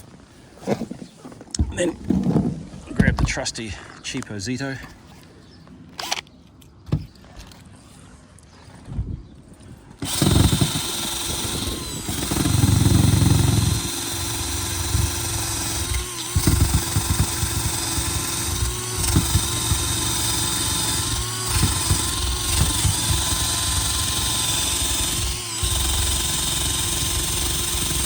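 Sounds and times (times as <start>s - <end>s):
cordless drill motor whine: 10.0s - 28.0s.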